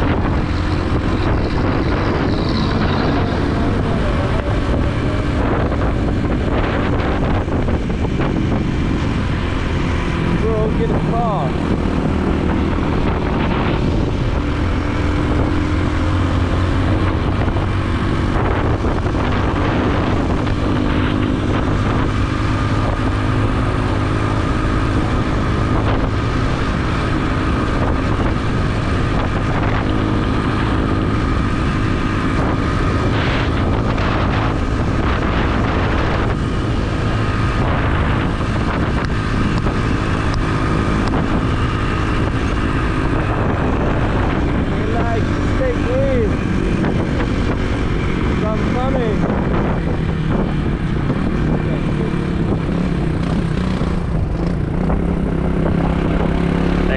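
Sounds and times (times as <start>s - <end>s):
wind rushing over microphone: 0.0s - 56.9s
motorbike engine running: 18.4s - 56.9s.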